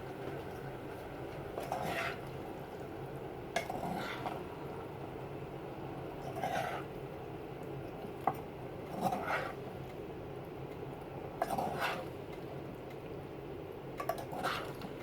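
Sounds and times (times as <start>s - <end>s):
utensil stirring vegetables in pan: 0.0s - 4.6s, 6.2s - 6.9s, 8.8s - 9.8s, 11.4s - 12.2s, 14.1s - 15.0s
utensil scraping pan: 1.6s - 2.2s, 9.0s - 9.6s.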